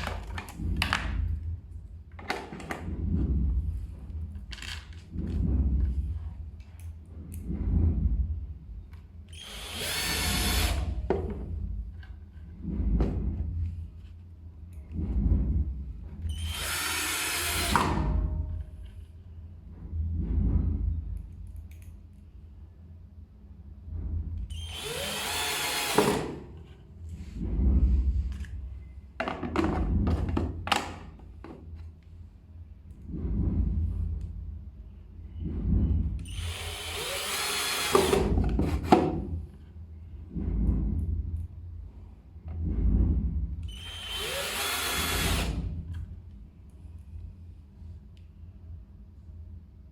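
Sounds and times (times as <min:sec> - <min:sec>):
power drill driving a screw: 0:09.4 - 0:11.0, 0:16.3 - 0:18.0, 0:24.5 - 0:26.3, 0:36.3 - 0:38.3, 0:43.7 - 0:45.6.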